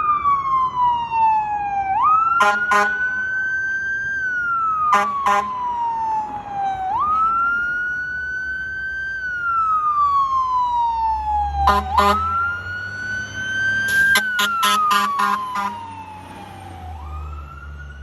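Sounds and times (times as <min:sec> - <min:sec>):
fire engine siren wailing: 0:00.0 - 0:18.0
short horn blasts: 0:11.7 - 0:12.2, 0:14.0 - 0:15.8.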